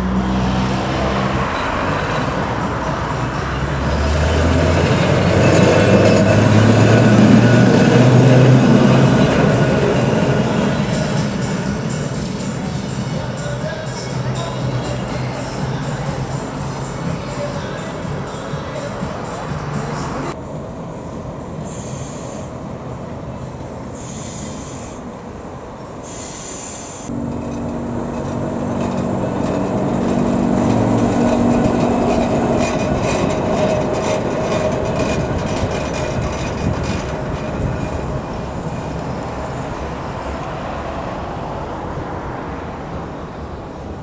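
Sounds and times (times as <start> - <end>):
tram motor hum: 0.0 - 44.0
tram wheels squealing: 0.0 - 44.0
clicks over rail joints: 27.1 - 40.6.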